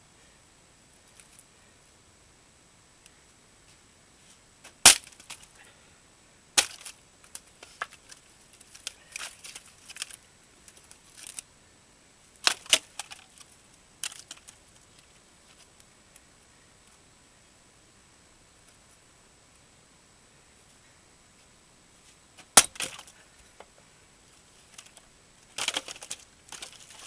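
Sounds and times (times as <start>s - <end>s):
axe splitting firewood: 22.5s - 23.1s.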